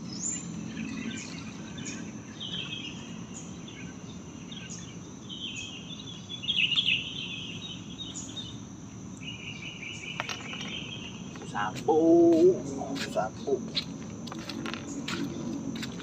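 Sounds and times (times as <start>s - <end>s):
insect chirping calls: 0.0s - 16.0s
insects chirring: 0.0s - 16.0s.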